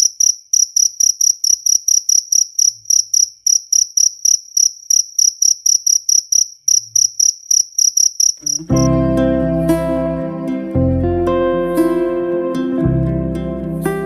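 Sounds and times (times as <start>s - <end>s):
cricket chirping: 0.0s - 8.9s.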